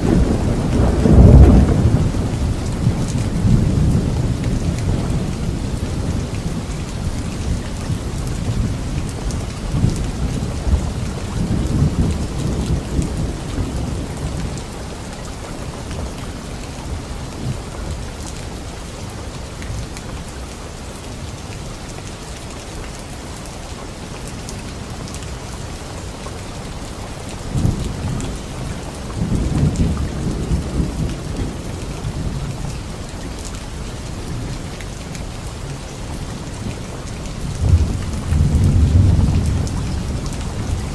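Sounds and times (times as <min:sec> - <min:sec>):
rolling thunder: 0:00.0 - 0:18.0, 0:27.5 - 0:35.2, 0:36.2 - 0:40.9
heavy rain falling: 0:00.0 - 0:40.9.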